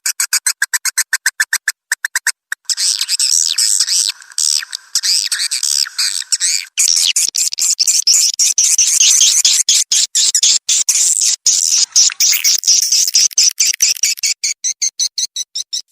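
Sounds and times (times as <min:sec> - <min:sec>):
swiftlets twittering: 0:02.7 - 0:08.2, 0:11.4 - 0:14.3.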